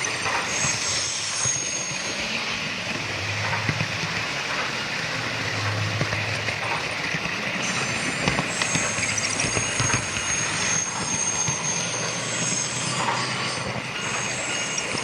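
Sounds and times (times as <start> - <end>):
recorded train running sounds: 0.0 - 15.0
model train wheels clicking: 3.5 - 15.0.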